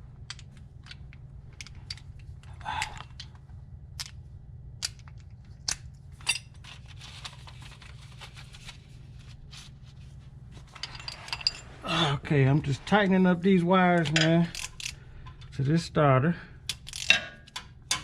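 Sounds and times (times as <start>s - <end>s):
steady low hum: 0.0s - 18.0s
metal parts clinking: 4.8s - 6.9s, 10.6s - 11.8s, 13.9s - 15.6s, 16.7s - 18.0s.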